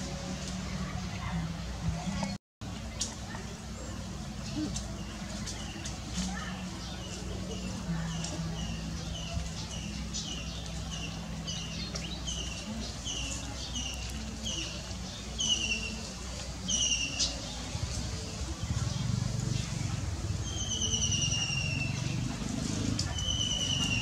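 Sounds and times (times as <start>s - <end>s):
bird chirping: 18.7s - 22.3s, 23.1s - 24.0s.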